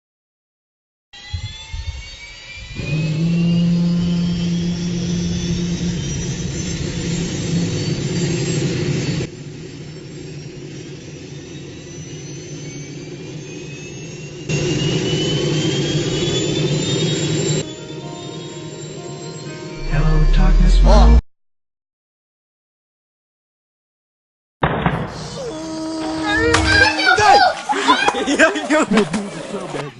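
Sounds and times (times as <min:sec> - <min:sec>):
jet engine turbine roaring: 0:01.2 - 0:19.0.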